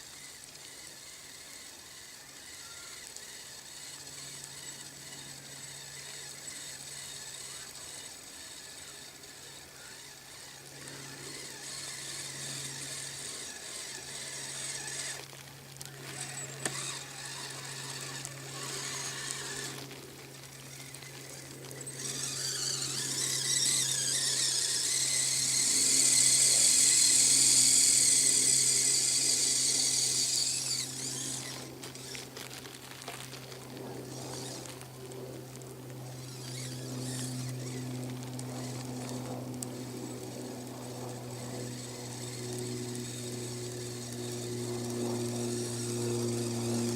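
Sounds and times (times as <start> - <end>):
electric motor whining: 0.0 - 46.9
low hum: 15.2 - 46.9.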